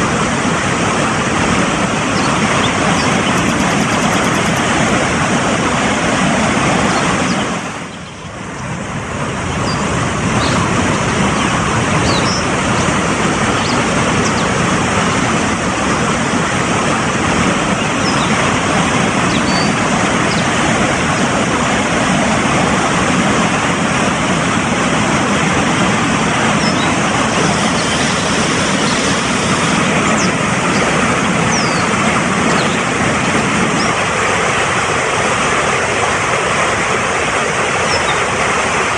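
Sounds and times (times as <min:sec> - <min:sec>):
mountain stream rushing: 0:00.0 - 0:38.9
small birds chirping: 0:02.2 - 0:04.7, 0:06.9 - 0:08.7, 0:31.5 - 0:31.9.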